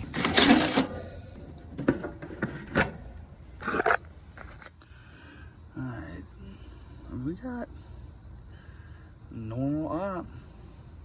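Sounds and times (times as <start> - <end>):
handling knocks and clicks: 0.0 - 3.2
crickets chirping: 0.0 - 11.0
loud rustling scrape: 1.8 - 2.9.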